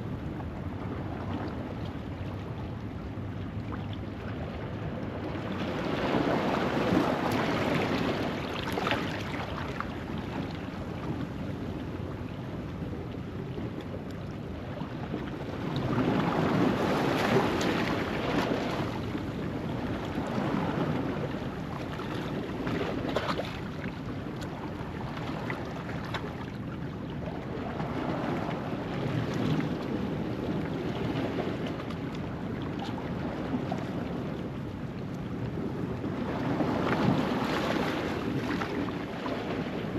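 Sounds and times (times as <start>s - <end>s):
ocean waves on rocky shore: 35.8s - 39.9s.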